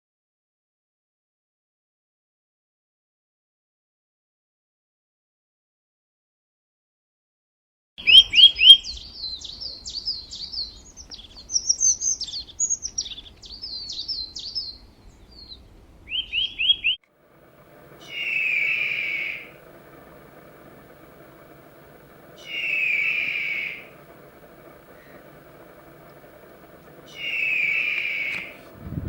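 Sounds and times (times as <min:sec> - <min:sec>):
songbird chirping and whistling: 0:08.0 - 0:17.0, 0:17.8 - 0:29.0
harsh bird call: 0:08.0 - 0:29.0
low steady hum: 0:17.1 - 0:29.0.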